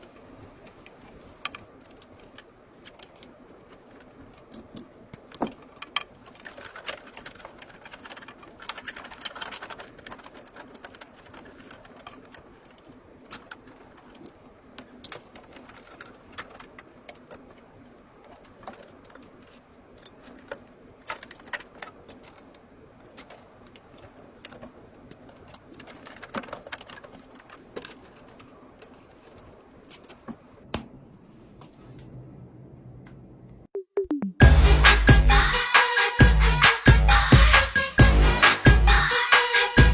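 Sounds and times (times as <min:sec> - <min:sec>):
faint room noise: 0:00.0 - 0:33.7
music: 0:33.8 - 0:39.9.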